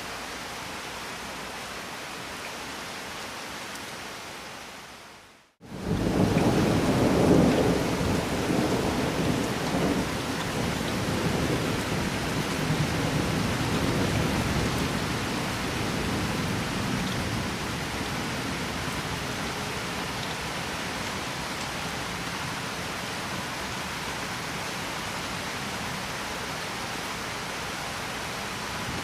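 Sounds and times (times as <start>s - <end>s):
steady rainfall: 0.0s - 29.0s
rolling thunder rumble: 5.7s - 18.2s.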